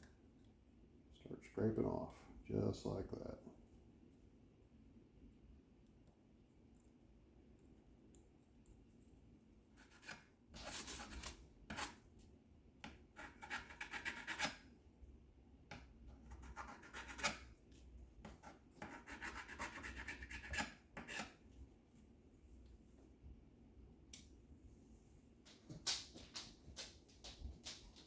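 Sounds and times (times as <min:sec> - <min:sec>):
chisel scraping glue and paint: 0:09.8 - 0:12.0, 0:13.1 - 0:14.6, 0:16.2 - 0:17.5, 0:18.3 - 0:21.4.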